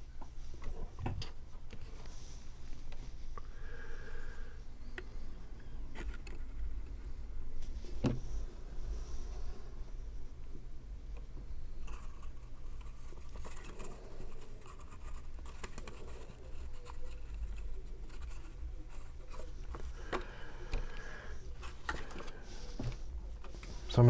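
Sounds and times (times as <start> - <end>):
steady low hum: 0.0 - 24.0
paper rustling and scratching: 5.0 - 7.0, 11.8 - 24.0.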